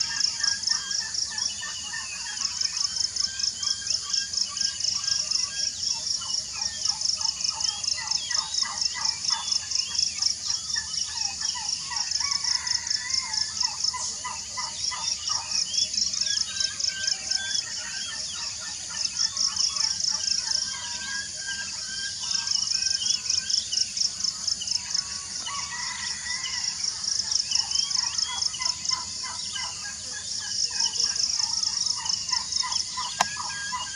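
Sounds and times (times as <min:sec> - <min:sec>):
birds chirping and whistling: 0:13.6 - 0:33.9.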